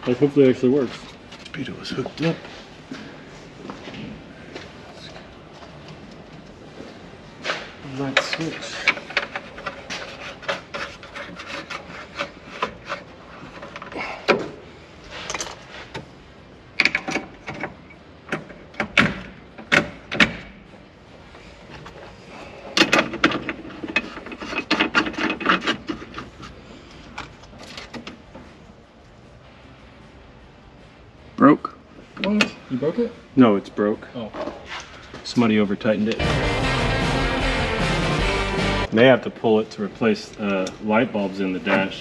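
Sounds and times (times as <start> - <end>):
tools and parts clicking and knocking: 8.1 - 14.6, 16.8 - 20.6, 22.7 - 26.5.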